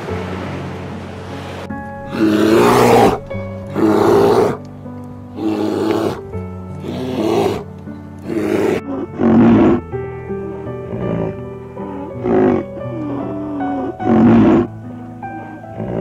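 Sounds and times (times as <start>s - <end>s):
background music with held notes: 0.0s - 16.0s
large animal roaring: 2.0s - 4.6s, 5.4s - 6.2s, 6.8s - 9.8s, 10.9s - 14.7s, 15.8s - 16.0s.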